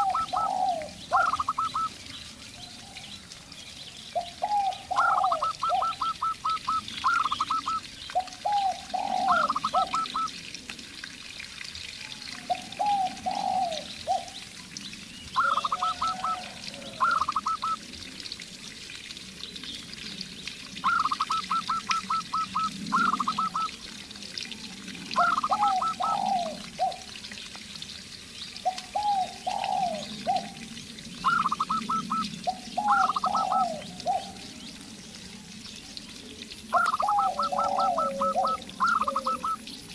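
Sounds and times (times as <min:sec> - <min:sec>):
doves cooing: 0:00.0 - 0:01.9, 0:04.2 - 0:10.3, 0:12.4 - 0:14.4, 0:15.4 - 0:17.8, 0:20.8 - 0:23.8, 0:25.1 - 0:27.2, 0:28.6 - 0:30.6, 0:31.2 - 0:34.5, 0:36.7 - 0:39.7
small birds chirping: 0:03.0 - 0:10.3.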